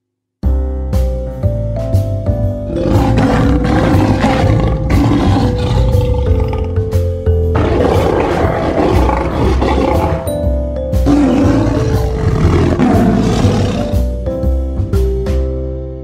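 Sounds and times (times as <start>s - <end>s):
children's background music: 0.4s - 16.0s
lion roaring: 2.7s - 6.9s, 7.6s - 10.4s, 11.1s - 14.1s.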